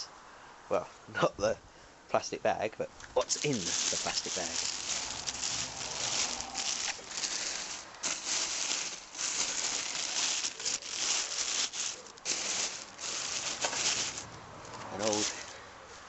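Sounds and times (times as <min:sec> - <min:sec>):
plastic bag crinkling: 0:03.2 - 0:14.4, 0:15.0 - 0:15.6.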